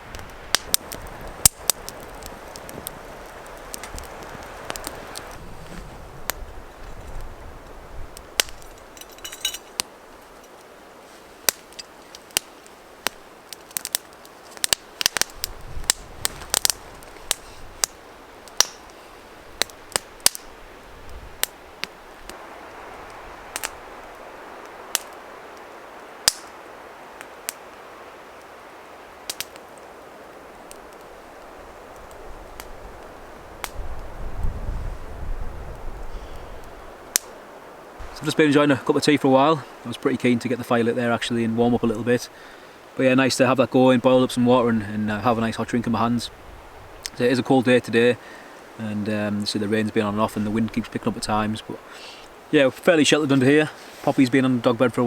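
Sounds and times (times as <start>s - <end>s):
sharp pops of fire: 0.0s - 34.8s, 35.7s - 38.4s, 46.8s - 47.2s
steady hiss: 0.0s - 55.0s
wood fire crackling: 0.0s - 55.0s.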